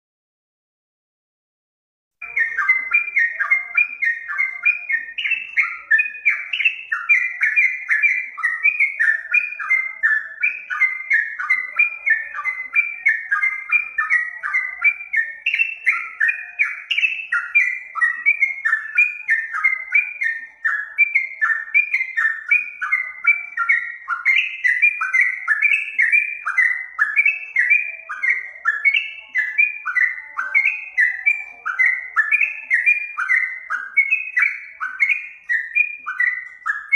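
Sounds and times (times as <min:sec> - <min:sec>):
bulbul song: 0:02.2 - 0:36.9.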